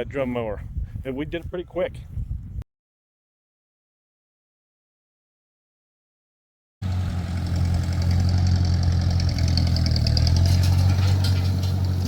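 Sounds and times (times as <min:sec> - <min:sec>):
tractor engine running: 0:06.8 - 0:12.0.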